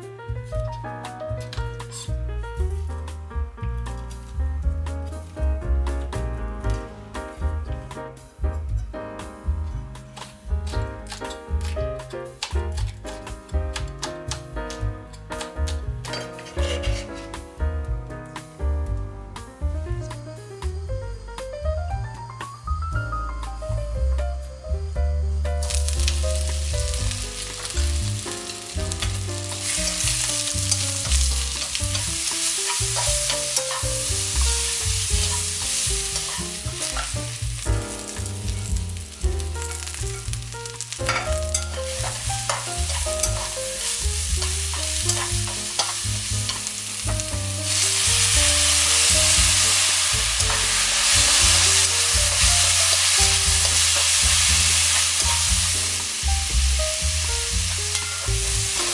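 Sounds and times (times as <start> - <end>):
food sizzling in a pan: 26.4 - 58.9.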